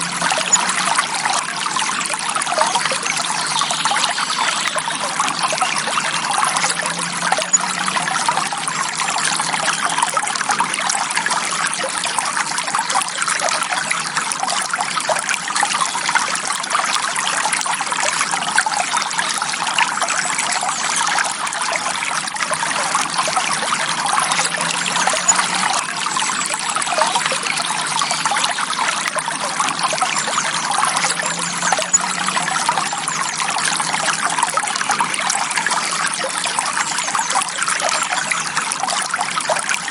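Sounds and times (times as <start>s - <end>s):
stream flowing gently: 0.0s - 39.9s.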